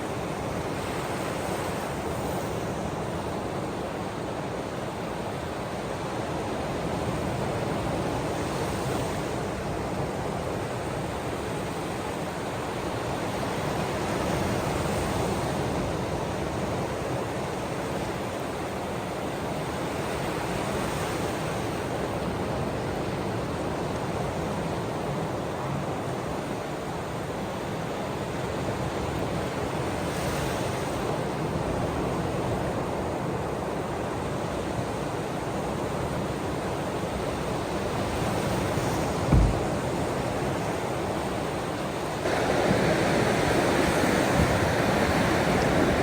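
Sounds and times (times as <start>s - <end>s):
ocean waves washing on shore: 0.0s - 46.0s.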